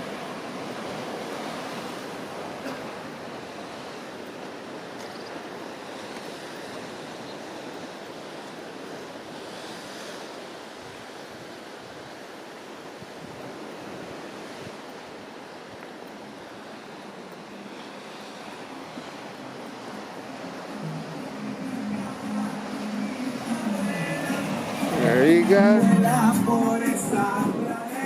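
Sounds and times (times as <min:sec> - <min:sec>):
ocean surf washing on shore: 0:00.0 - 0:28.0
wind on microphone: 0:08.8 - 0:15.9.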